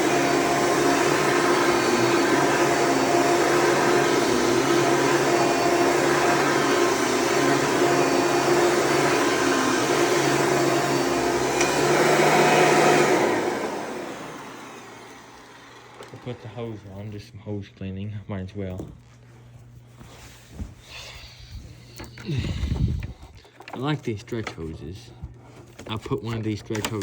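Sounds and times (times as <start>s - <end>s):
vacuum cleaner running: 0.0s - 17.2s.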